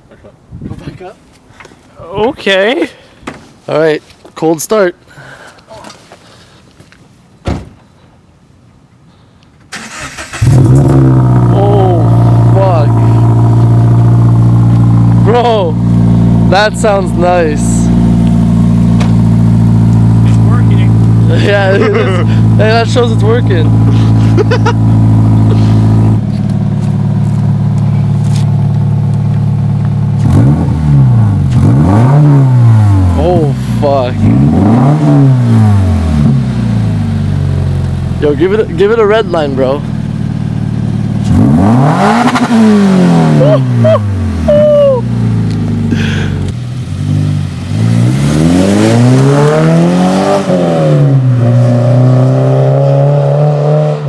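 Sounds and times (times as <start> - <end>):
car engine revving on straight pipes: 9.8 - 54.0
car engine idling loudly: 11.6 - 30.2.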